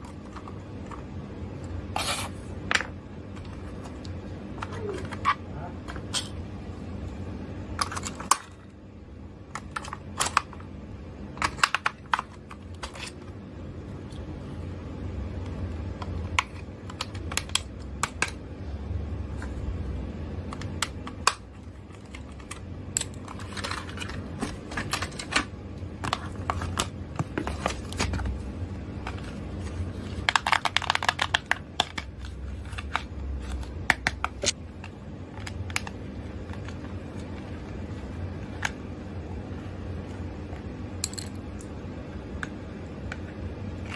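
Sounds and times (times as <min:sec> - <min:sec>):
low steady hum: 0:00.0 - 0:43.9.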